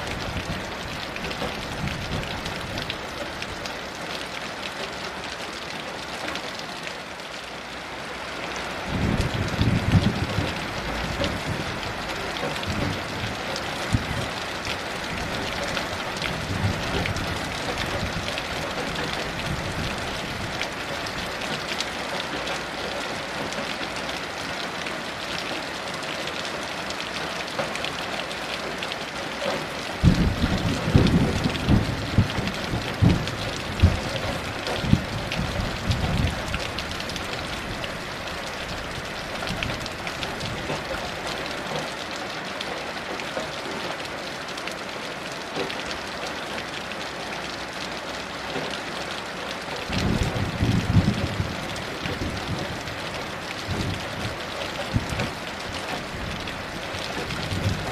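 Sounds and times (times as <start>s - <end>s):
heavy rain falling: 0.0s - 57.9s
thunder rumbling and cracking: 8.9s - 21.6s, 30.0s - 40.9s, 49.8s - 57.9s.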